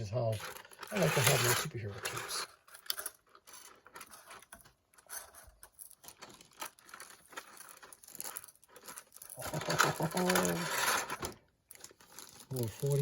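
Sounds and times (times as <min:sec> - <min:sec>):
plastic packaging rustling: 0:00.0 - 0:13.0.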